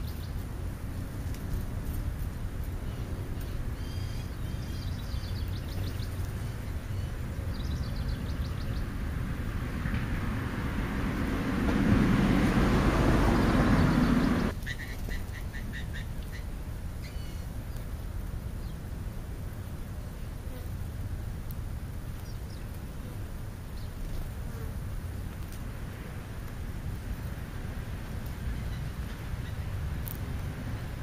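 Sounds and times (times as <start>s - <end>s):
small birds chirping: 0.0s - 0.4s, 2.6s - 9.1s, 13.2s - 17.9s, 22.1s - 22.8s, 28.0s - 31.0s
rushing noise: 8.9s - 14.5s.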